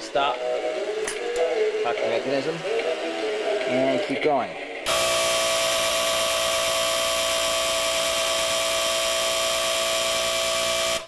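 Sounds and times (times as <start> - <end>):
electric motor whining: 4.7 - 11.0.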